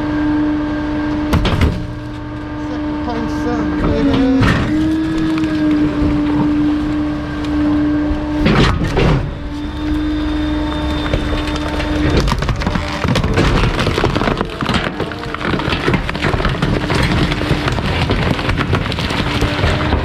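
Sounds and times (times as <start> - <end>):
hydraulic compactor humming: 0.0 - 20.0
load cracking and snapping: 3.8 - 7.6, 8.4 - 20.0
heavy crunches: 3.9 - 20.0.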